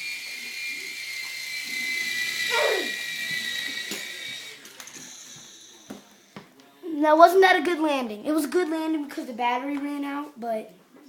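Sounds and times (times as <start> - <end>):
toy helicopter motor whining: 0.0 - 6.4
short falling cry: 2.5 - 3.0.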